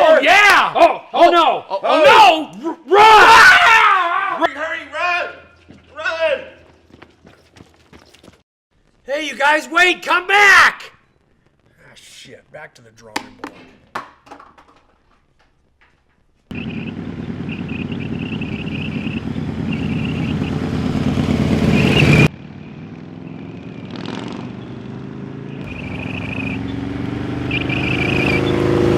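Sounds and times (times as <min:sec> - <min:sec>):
motorcycle engine: 0:05.2 - 0:08.4, 0:16.5 - 0:28.9
another engine: 0:16.5 - 0:28.9.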